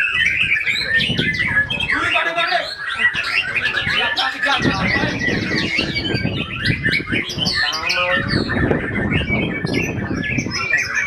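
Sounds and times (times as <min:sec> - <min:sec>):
bird singing whistled notes: 0:00.0 - 0:11.0
wind rumble on microphone: 0:00.0 - 0:11.0.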